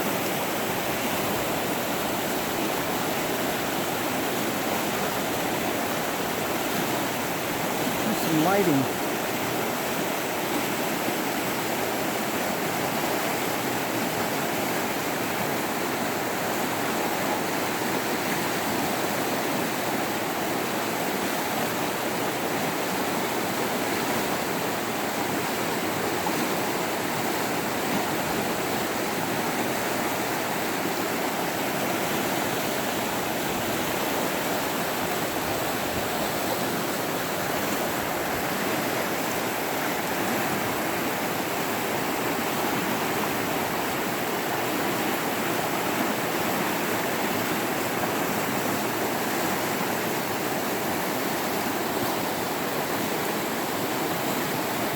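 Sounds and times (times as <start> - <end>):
running water: 0.0 - 54.9.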